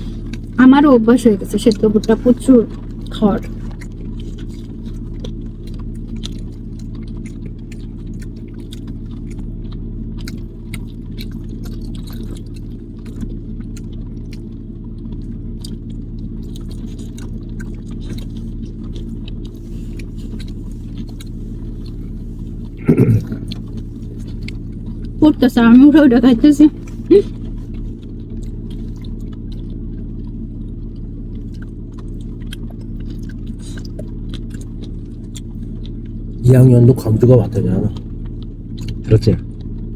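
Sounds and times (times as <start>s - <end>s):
person chewing corn: 0.0s - 39.9s
loud voice burst: 22.8s - 23.5s.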